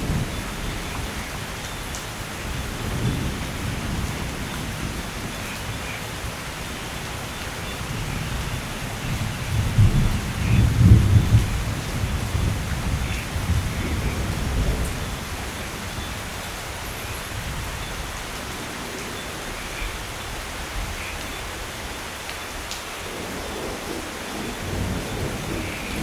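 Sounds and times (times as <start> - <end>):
steady rain falling: 0.0 - 26.0
low thunder rumble: 7.8 - 16.1, 23.1 - 26.0.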